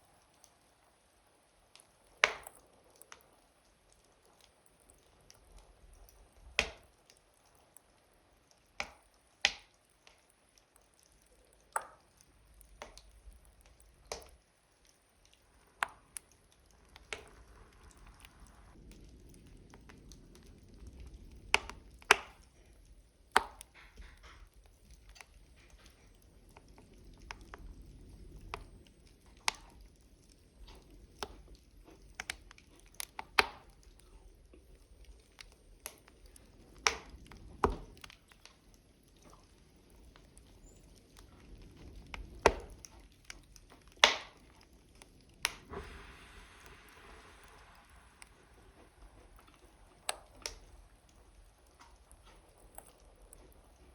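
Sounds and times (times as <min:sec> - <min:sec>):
logs crackling in a stove: 0:00.0 - 0:53.9
faint low rumble: 0:11.0 - 0:53.9.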